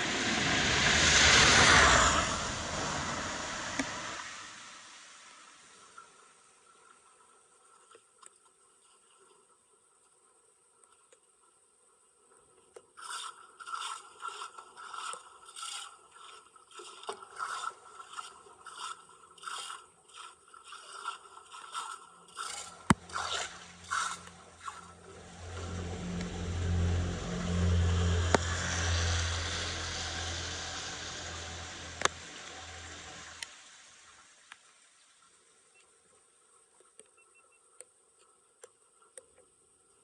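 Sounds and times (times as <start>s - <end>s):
low humming rumble: 0.0s - 5.7s, 22.7s - 34.2s.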